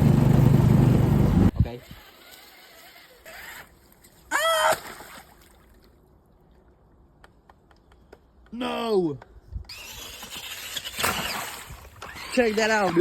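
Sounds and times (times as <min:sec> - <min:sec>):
water splashing: 0:04.6 - 0:06.6, 0:10.5 - 0:13.0.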